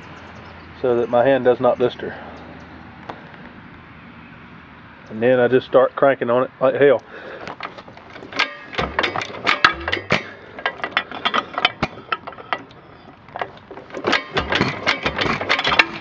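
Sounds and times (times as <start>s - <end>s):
flywheel engine being hand-cranked: 7.2s - 16.0s.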